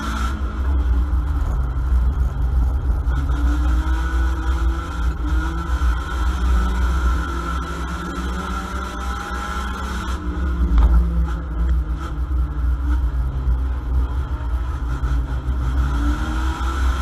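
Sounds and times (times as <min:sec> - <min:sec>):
car engine running under load: 0:00.0 - 0:17.0.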